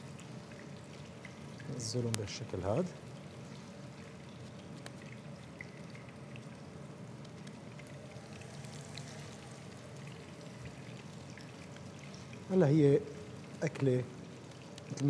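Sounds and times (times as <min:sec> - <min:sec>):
patties sizzling in oil: 0:06.0 - 0:12.5.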